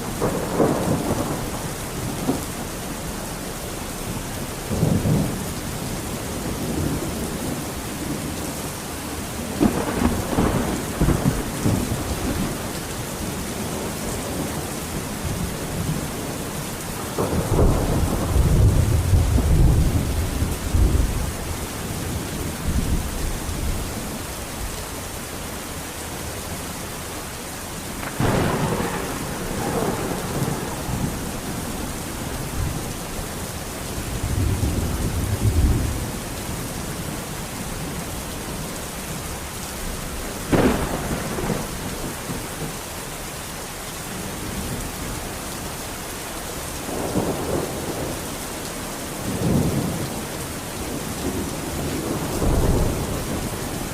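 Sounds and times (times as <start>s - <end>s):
thunder rumbling: 0.0s - 24.7s, 27.8s - 42.8s, 46.9s - 48.3s, 49.2s - 53.9s
steady rain falling: 0.0s - 53.9s
sharp thunder crack: 28.0s - 31.9s, 40.5s - 42.4s.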